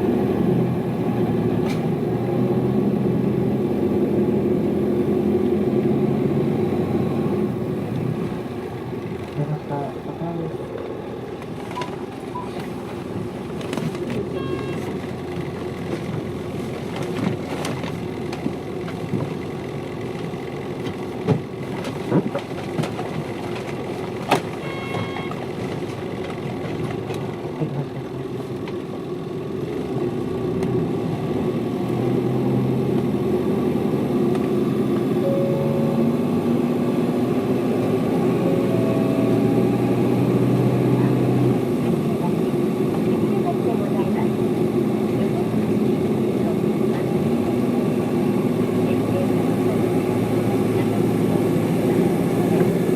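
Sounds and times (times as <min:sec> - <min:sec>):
bus engine drone: 0:00.0 - 0:52.9
brief beeps: 0:11.8 - 0:12.6, 0:14.3 - 0:14.9, 0:24.6 - 0:25.4, 0:35.2 - 0:36.3, 0:38.4 - 0:39.7.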